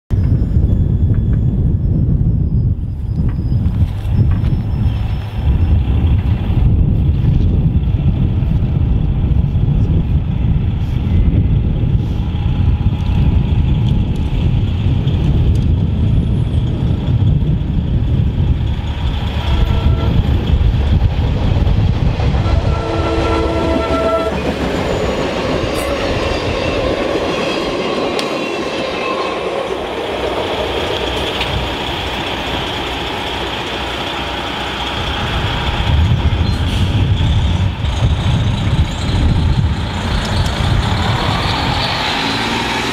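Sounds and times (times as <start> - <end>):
low rumble: 0.1 - 27.4
train wheels on rails: 0.2 - 42.9
diesel locomotive horn blasts: 19.4 - 20.4, 22.3 - 24.4.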